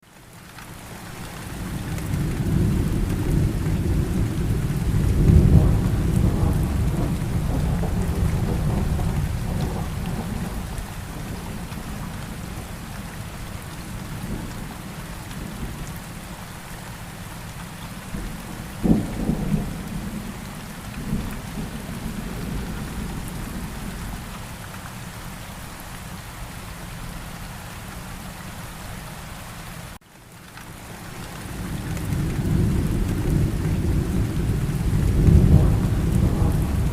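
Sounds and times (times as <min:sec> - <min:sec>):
steady rain: 0:00.0 - 0:36.9
rolling thunder: 0:02.0 - 0:12.8, 0:18.1 - 0:24.3, 0:31.6 - 0:36.9
sharp crack of thunder: 0:02.1 - 0:11.8, 0:18.1 - 0:24.0, 0:31.9 - 0:36.9.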